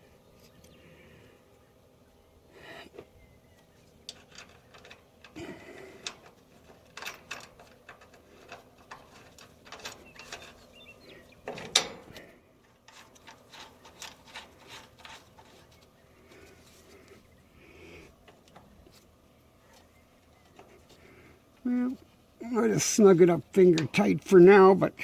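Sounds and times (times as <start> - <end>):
small metal clicks and clinks: 4.1 - 12.3.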